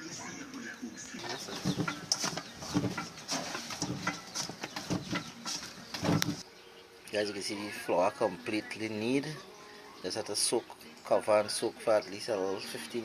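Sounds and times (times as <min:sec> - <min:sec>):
dough kneaded by hand: 0:01.2 - 0:06.4.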